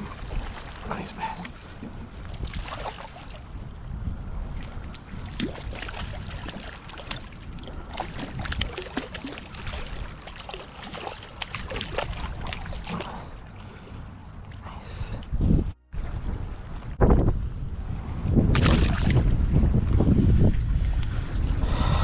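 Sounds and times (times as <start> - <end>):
water splashing: 0.0 - 3.7, 4.5 - 14.7, 18.5 - 19.4
wind rumble on microphone: 0.0 - 22.0.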